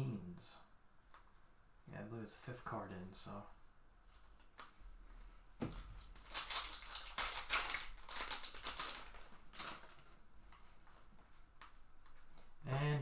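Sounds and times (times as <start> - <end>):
foil wrapper crinkling: 6.0 - 11.7.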